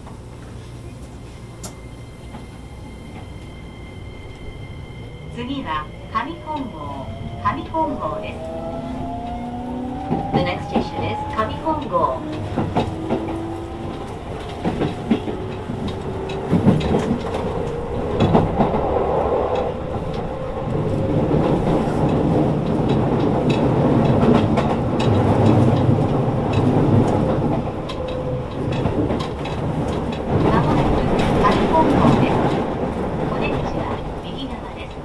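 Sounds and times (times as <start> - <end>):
train running rumble: 0.0 - 35.0
train inverter whine rising in pitch: 1.2 - 22.8
wheels clicking over rail joints: 9.1 - 34.1.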